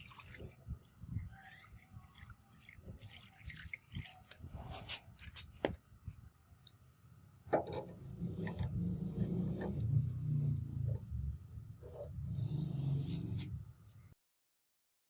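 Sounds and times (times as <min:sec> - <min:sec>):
rubbing and scraping: 0:00.0 - 0:05.8, 0:11.8 - 0:13.7
low steady hum: 0:00.0 - 0:14.2.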